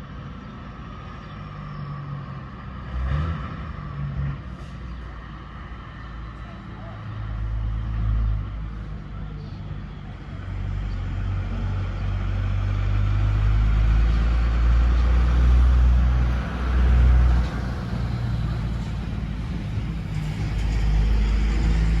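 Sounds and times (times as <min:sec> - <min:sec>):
heavy truck engine hum: 0:00.0 - 0:22.0
tyre and road noise: 0:00.0 - 0:22.0.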